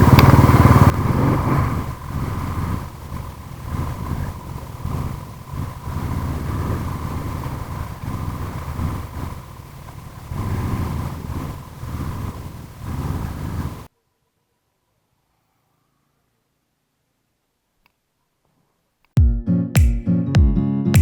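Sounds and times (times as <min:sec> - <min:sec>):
motorcycle engine running: 0:00.0 - 0:13.9
wind on microphone: 0:00.0 - 0:13.9.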